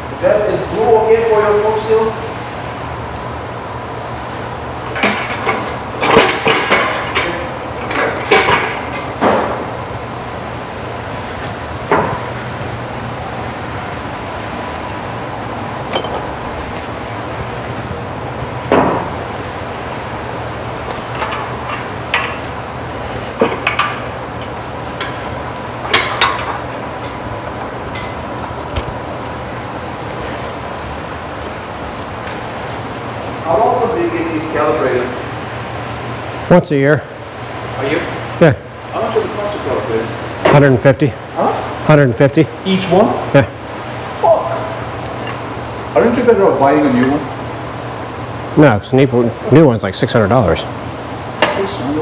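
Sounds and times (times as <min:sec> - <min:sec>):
low shop hum: 0:00.0 - 0:52.0
metal clanks and knocks: 0:04.9 - 0:09.8, 0:11.8 - 0:12.6, 0:15.9 - 0:16.8, 0:18.6 - 0:20.0, 0:20.8 - 0:22.6, 0:23.3 - 0:29.0.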